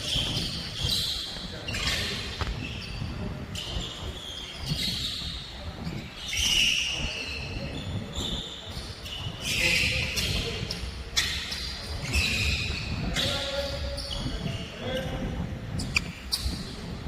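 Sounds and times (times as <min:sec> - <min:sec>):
sneakers squeaking on floor: 0:00.0 - 0:17.0.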